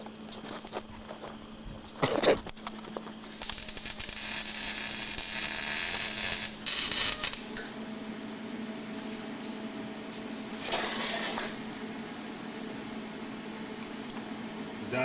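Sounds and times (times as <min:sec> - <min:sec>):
welder arc crackling and hissing: 0:00.0 - 0:07.8
steady low hum: 0:00.0 - 0:15.0.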